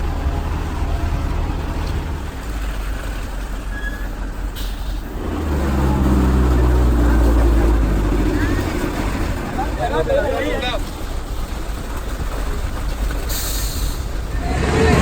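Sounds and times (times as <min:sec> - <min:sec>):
heavy vehicle engine rumbling: 0:00.0 - 0:15.0
air brake hiss: 0:04.6 - 0:05.2, 0:13.3 - 0:14.2.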